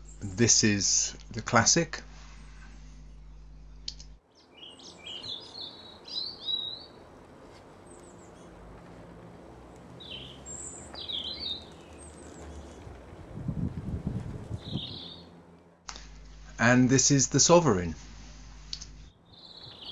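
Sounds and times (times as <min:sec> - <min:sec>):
faint low hum: 0:00.0 - 0:06.1, 0:11.6 - 0:19.9
small birds chirping: 0:02.2 - 0:07.1, 0:07.8 - 0:08.6, 0:09.7 - 0:13.0, 0:14.5 - 0:15.3, 0:18.6 - 0:19.9.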